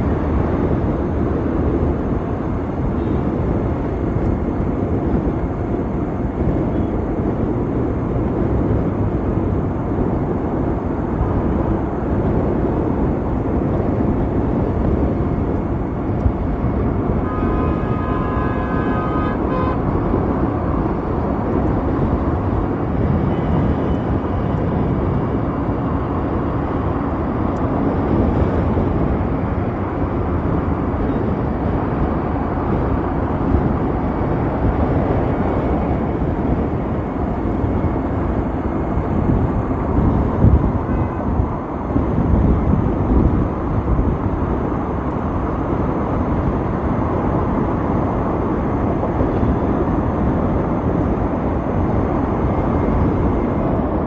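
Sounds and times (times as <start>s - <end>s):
road and traffic noise: 0.0s - 54.0s
wind buffeting microphone: 0.0s - 54.0s.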